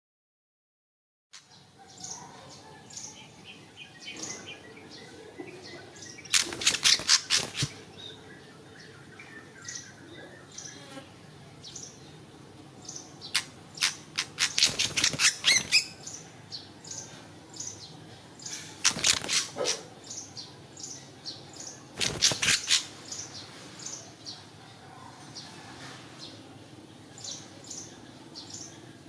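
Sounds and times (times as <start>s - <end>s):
rapid harsh bird calls: 1.4s - 24.6s
soft high bird chirps: 12.9s - 24.5s.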